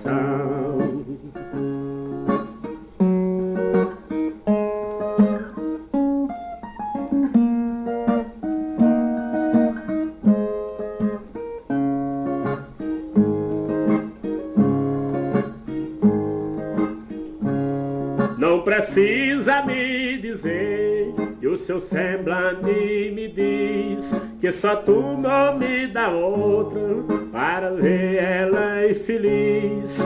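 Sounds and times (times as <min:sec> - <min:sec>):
man singing: 0:00.0 - 0:01.4, 0:18.4 - 0:30.0
plucked guitar melody: 0:00.0 - 0:30.0.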